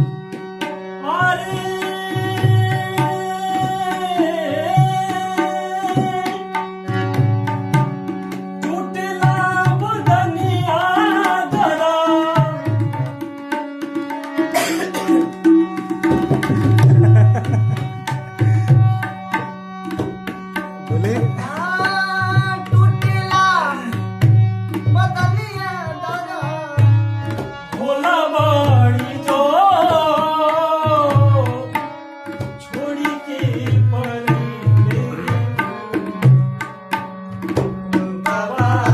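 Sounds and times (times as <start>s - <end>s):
man singing: 1.0s - 6.7s, 8.6s - 13.3s, 20.8s - 38.9s
tabla deep strokes: 14.4s - 23.4s.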